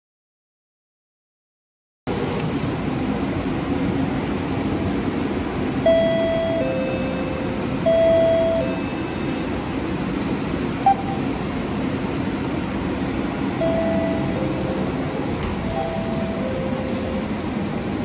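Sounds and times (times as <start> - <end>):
rumbling background noise: 2.1 - 18.0
short beep: 5.9 - 9.5, 10.8 - 11.3, 13.6 - 14.8
two-note electronic chime: 13.6 - 14.9.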